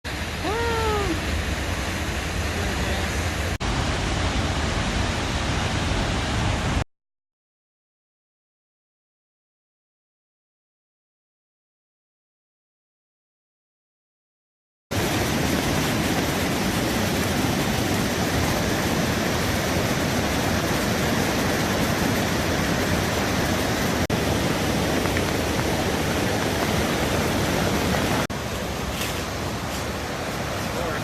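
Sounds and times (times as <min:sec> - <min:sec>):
floodwater rushing: 0:00.1 - 0:06.8, 0:14.9 - 0:31.0.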